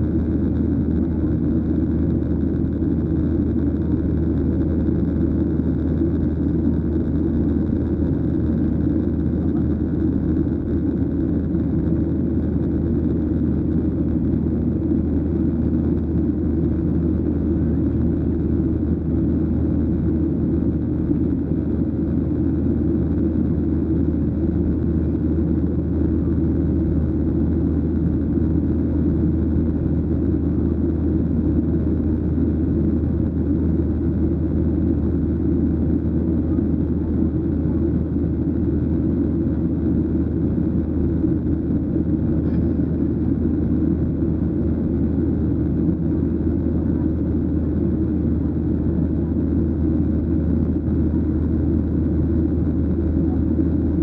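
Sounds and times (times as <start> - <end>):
jet engine hum: 0.0 - 54.0.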